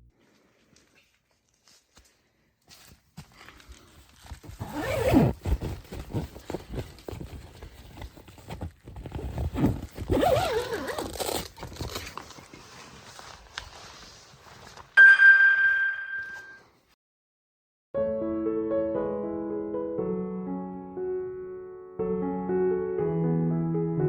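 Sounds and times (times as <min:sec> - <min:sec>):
zipper being pulled open: 0:04.4 - 0:07.3, 0:07.9 - 0:12.9.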